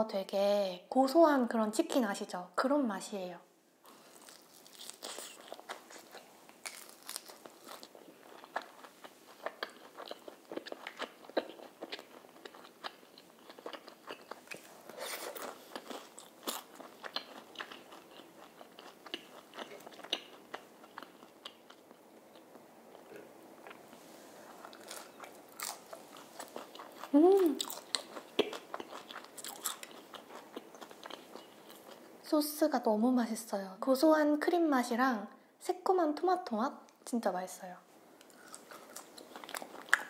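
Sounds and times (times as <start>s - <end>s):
crunching and chewing fried food: 3.9s - 32.1s, 38.2s - 40.0s.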